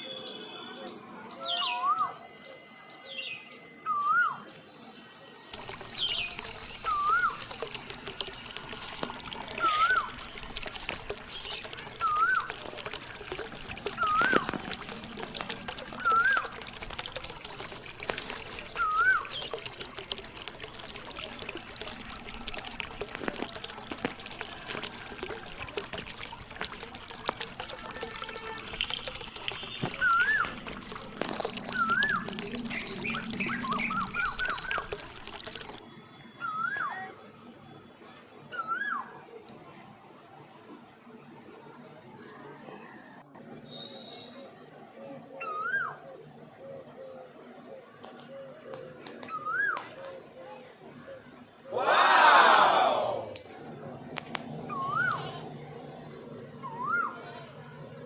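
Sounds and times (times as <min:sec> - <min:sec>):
warbling whistle: 0:01.8 - 0:39.0
water pouring and trickling: 0:05.5 - 0:35.9
bird whistling: 0:18.8 - 0:19.6.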